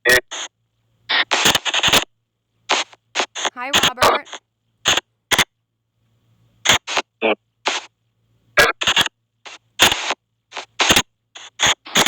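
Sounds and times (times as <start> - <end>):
chopped bursts of radio noise: 0.0 - 0.5, 1.1 - 2.1, 2.7 - 5.5, 6.6 - 7.9, 8.6 - 12.0
clipped voice fragments: 3.4 - 5.0.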